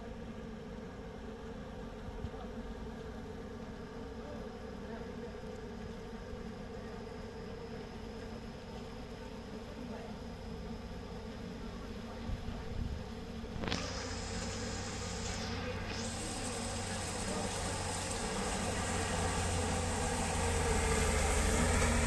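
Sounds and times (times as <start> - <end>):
vehicle engine droning: 13.6 - 22.0.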